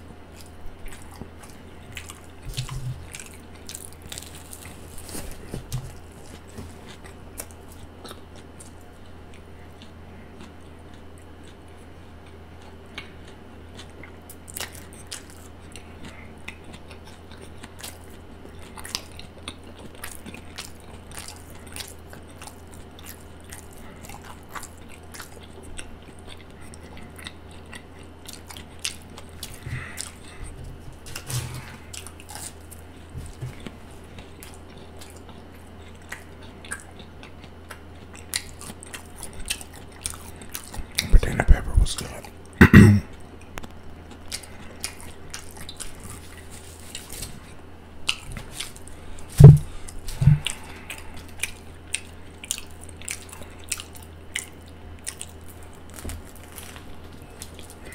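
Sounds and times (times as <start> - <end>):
person chewing: 0.0 - 57.9
low hum: 48.9 - 51.5.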